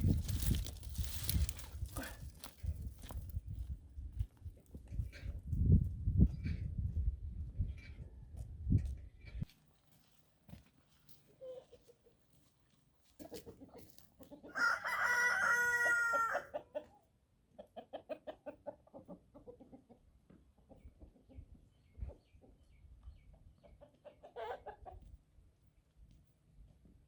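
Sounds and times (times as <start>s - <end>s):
rooster crowing: 14.5s - 16.5s.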